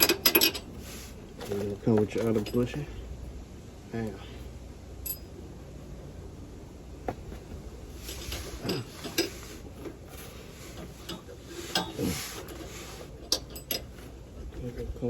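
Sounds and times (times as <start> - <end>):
metal parts clinking: 0.0 - 0.7, 5.0 - 5.4, 8.1 - 9.4, 10.7 - 14.0.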